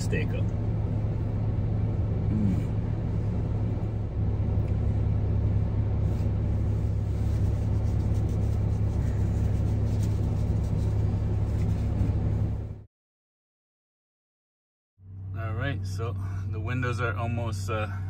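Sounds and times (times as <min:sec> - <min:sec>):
car engine idling: 0:00.0 - 0:12.8, 0:15.0 - 0:18.0
heater fan blowing: 0:00.0 - 0:12.8.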